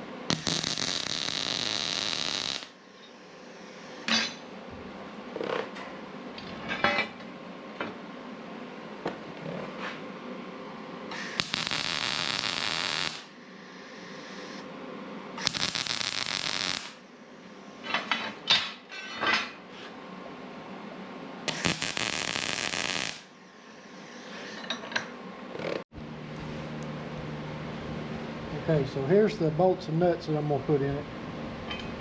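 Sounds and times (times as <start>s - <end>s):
welding crackle: 0.3s - 2.8s, 11.1s - 13.3s, 15.4s - 17.0s, 21.5s - 23.3s.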